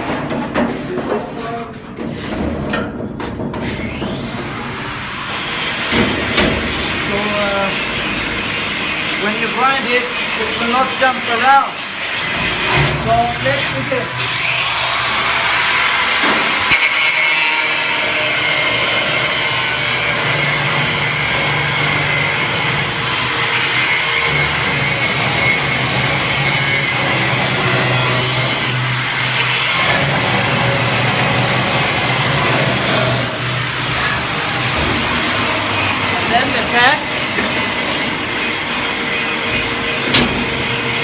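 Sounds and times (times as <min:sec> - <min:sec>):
angle grinder cutting steel: 0:03.7 - 0:41.0.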